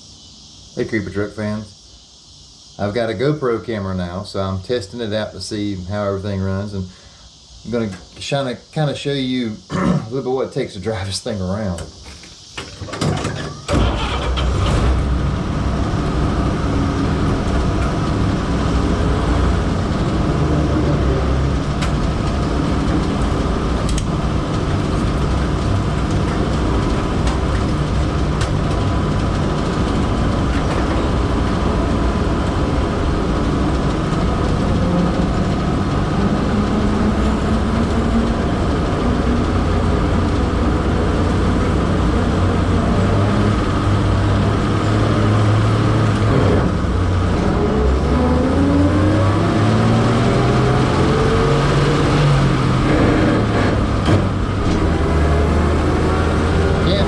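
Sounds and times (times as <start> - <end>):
road noise: 0.0 - 57.0
truck engine running: 12.0 - 57.0.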